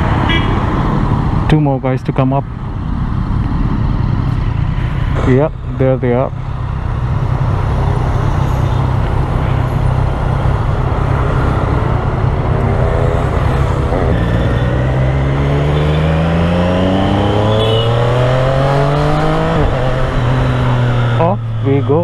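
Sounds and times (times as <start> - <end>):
motorcycle engine accelerating: 2.8 - 22.0.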